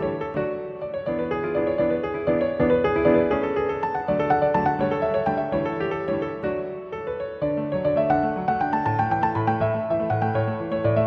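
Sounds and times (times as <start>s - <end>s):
piano instrumental music: 0.0s - 11.0s.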